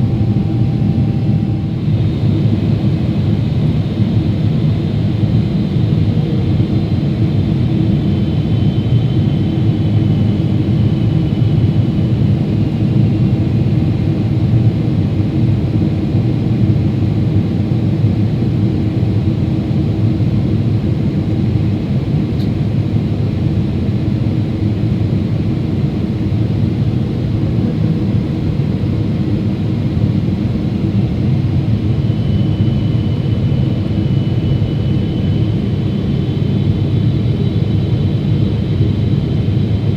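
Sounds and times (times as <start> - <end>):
faint high whine: 0.0 - 3.3
airliner engine roar: 0.0 - 39.9.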